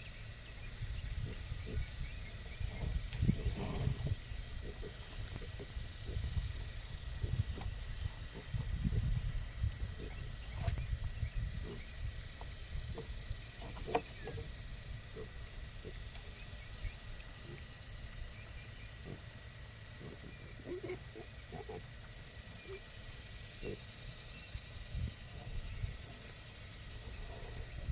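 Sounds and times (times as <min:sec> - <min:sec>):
pigs grunting: 0:01.2 - 0:02.0, 0:02.6 - 0:06.4, 0:19.0 - 0:19.3, 0:20.0 - 0:21.9, 0:23.6 - 0:23.9.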